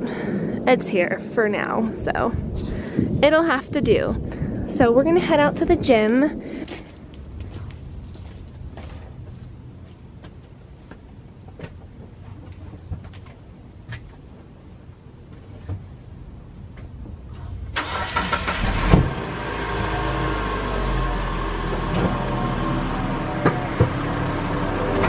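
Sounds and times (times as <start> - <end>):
car engine running: 18.5 - 25.0.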